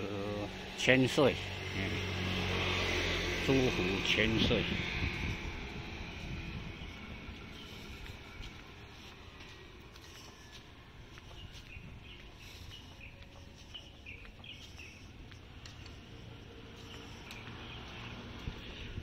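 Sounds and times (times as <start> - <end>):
small bird chirping: 10.0 - 19.0.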